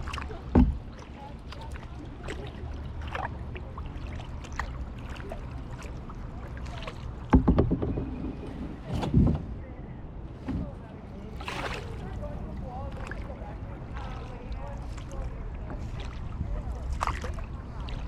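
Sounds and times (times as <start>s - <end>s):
water dripping off paddle: 0.0s - 8.1s, 13.9s - 18.0s
loud paddle splashes: 0.0s - 9.6s, 10.4s - 18.0s
steady low rumble: 8.0s - 18.0s.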